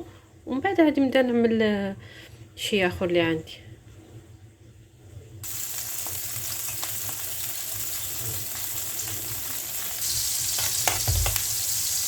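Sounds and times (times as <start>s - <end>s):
peppers sizzling in hot oil: 5.4s - 12.0s.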